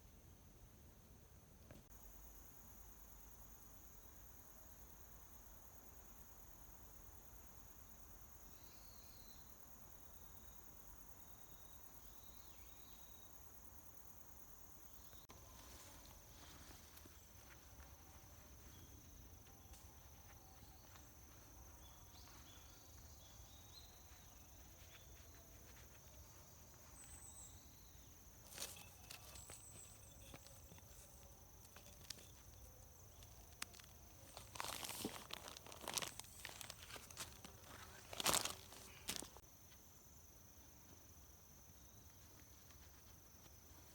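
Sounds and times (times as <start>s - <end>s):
crickets droning: 0.0s - 43.9s
crunching rustles: 28.2s - 39.4s.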